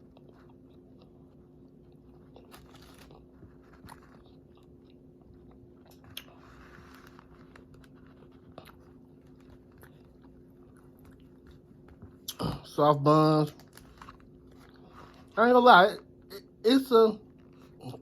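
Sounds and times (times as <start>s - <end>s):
faint chewing crispy food: 0.0s - 16.6s, 17.2s - 18.0s
small crunches and clicks: 0.1s - 12.4s, 13.4s - 15.4s.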